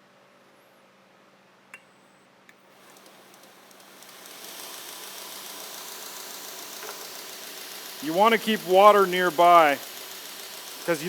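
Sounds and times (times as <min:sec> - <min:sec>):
belt grinder hissing: 0:02.7 - 0:11.0.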